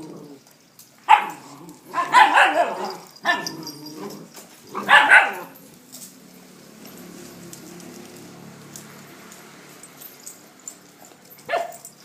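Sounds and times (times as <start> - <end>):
dogs barking: 1.0 - 5.8, 10.7 - 12.0.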